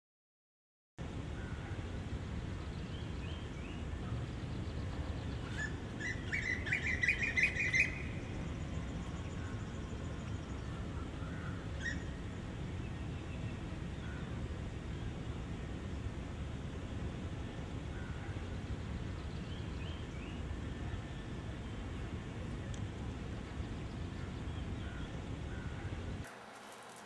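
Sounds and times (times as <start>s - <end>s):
low rumble ambience: 1.0s - 27.0s
bird chirping: 2.7s - 10.9s.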